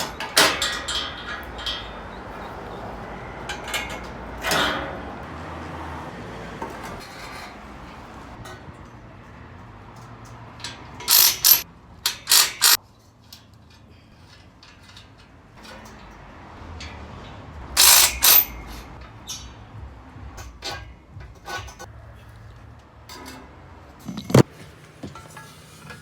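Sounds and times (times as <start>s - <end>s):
ratchet wrench clicking: 10.6s - 12.8s, 17.7s - 19.5s.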